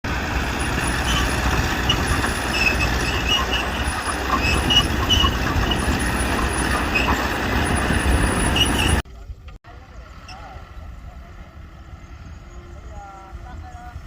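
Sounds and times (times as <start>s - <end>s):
diesel engine running: 0.0s - 9.0s.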